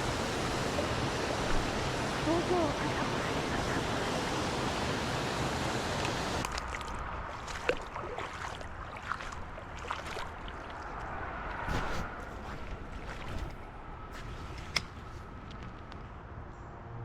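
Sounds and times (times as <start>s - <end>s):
creek water rushing: 0.0s - 14.3s
small water splashes and clicks: 6.0s - 16.1s.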